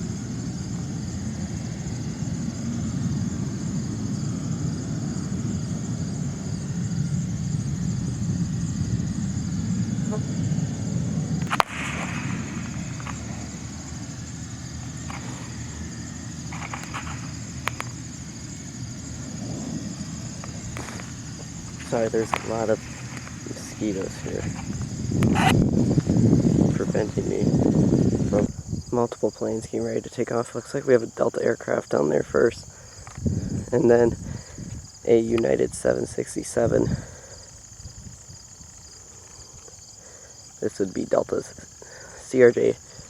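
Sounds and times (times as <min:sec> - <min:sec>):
low rumble: 0:00.0 - 0:28.9
insects chirring: 0:00.0 - 0:43.0
faint clicks: 0:16.5 - 0:18.0.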